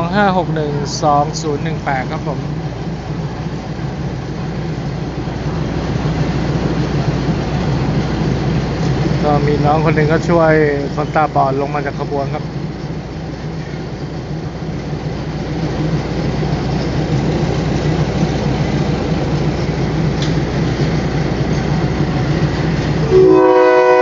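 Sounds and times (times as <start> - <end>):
diesel train engine humming: 0.0 - 24.0
train horn blast: 23.0 - 24.0.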